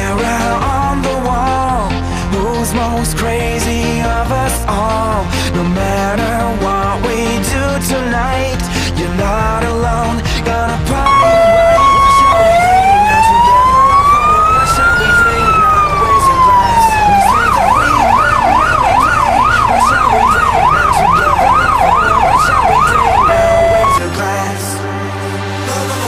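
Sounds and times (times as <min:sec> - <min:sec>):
fire engine siren: 0:11.0 - 0:24.0.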